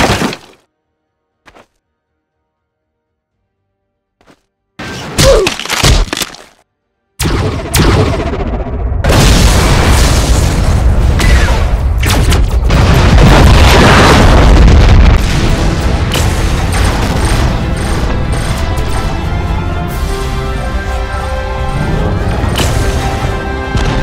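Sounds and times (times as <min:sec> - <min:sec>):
cinematic music: 0:06.7 - 0:13.3, 0:14.5 - 0:24.0
cinematic explosion booms: 0:07.2 - 0:18.6, 0:22.2 - 0:24.0.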